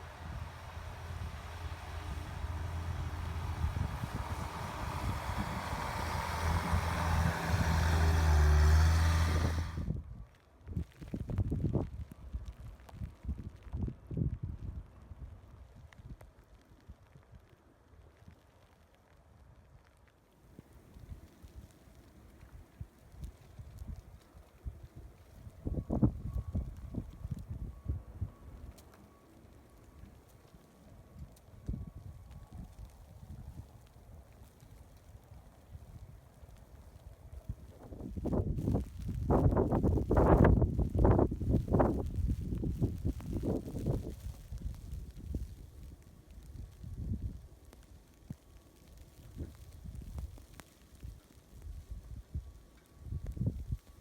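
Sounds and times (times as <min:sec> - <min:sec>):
engine humming and hissing: 0:00.0 - 0:09.9
wind buffeting microphone: 0:00.0 - 0:10.2, 0:23.2 - 0:28.4, 0:37.3 - 0:47.4.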